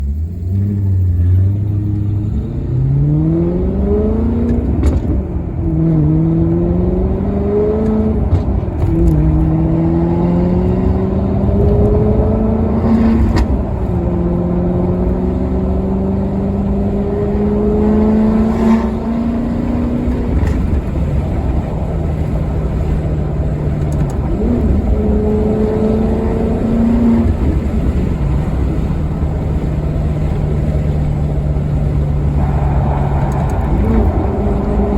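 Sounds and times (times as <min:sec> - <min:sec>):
car engine accelerating through gears: 0:00.0 - 0:34.9.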